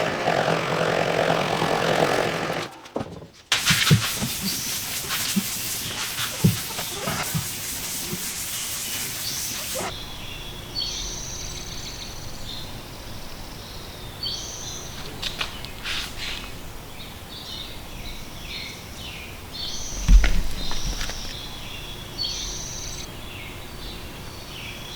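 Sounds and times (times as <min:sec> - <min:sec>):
steady hiss: 0:03.5 - 0:13.4.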